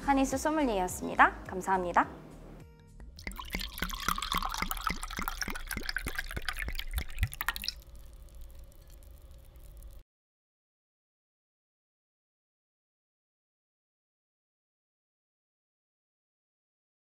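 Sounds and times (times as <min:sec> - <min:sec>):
wine glugging into a glass: 0:03.2 - 0:10.0.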